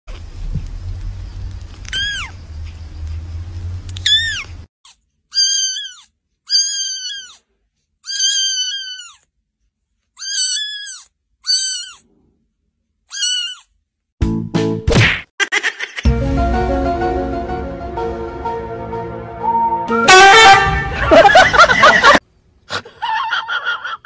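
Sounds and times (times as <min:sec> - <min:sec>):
kittens mewing: 0:01.9 - 0:02.4, 0:04.0 - 0:04.5, 0:05.3 - 0:07.4, 0:08.0 - 0:09.3, 0:10.2 - 0:12.1, 0:13.1 - 0:13.8.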